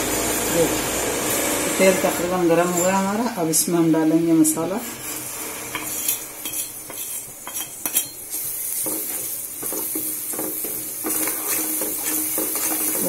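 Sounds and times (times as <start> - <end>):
masala sizzling in oil: 0.0 - 13.0
spatula clinking and scraping pan: 4.6 - 13.0.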